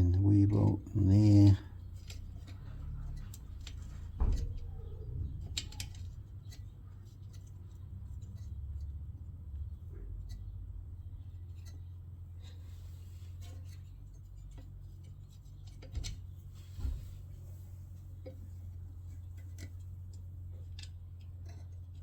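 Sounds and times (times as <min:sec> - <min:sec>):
steady low hum: 0:00.0 - 0:22.0
small metallic clicks and taps: 0:01.9 - 0:09.0, 0:18.2 - 0:22.0.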